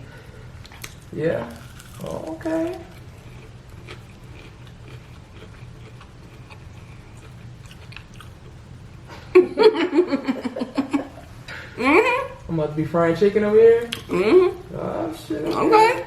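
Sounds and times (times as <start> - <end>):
chewing crispy fried chicken: 0.6 - 8.6.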